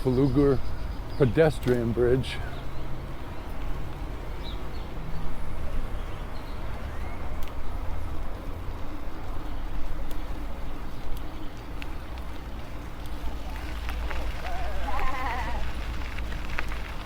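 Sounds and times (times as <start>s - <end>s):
faint clicks: 10.0s - 10.4s, 11.0s - 17.0s.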